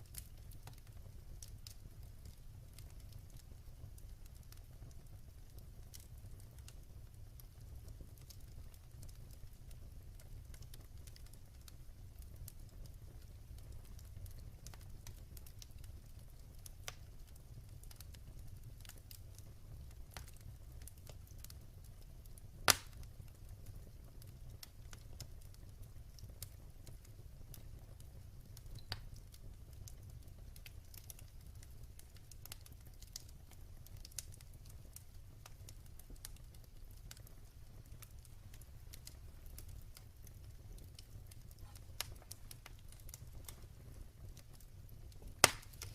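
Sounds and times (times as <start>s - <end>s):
low steady fire rumble: 0.0s - 45.9s
wood fire crackling: 0.0s - 45.9s
loud sharp pop: 45.4s - 45.8s.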